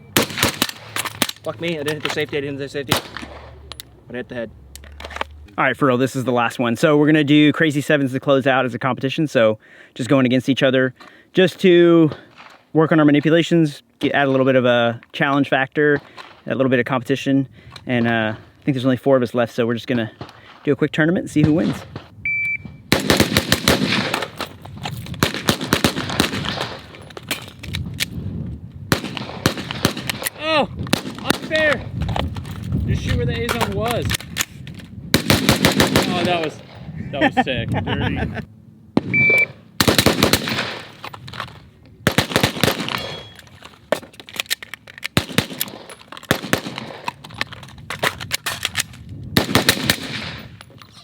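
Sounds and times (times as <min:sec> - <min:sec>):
shot timer beep: 0:22.3 - 0:22.8, 0:39.1 - 0:39.6
rapid gunfire: 0:22.9 - 0:24.3, 0:25.2 - 0:26.7, 0:35.2 - 0:36.4, 0:39.8 - 0:40.9, 0:42.1 - 0:43.1.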